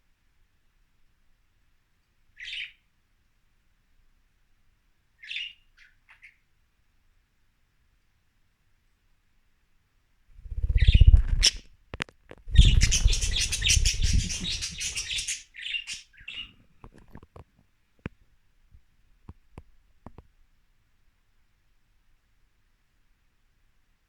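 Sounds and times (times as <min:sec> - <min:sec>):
budgies flapping wings: 0:10.4 - 0:11.7, 0:12.5 - 0:15.4
budgies chirping: 0:10.5 - 0:11.6, 0:12.5 - 0:16.6.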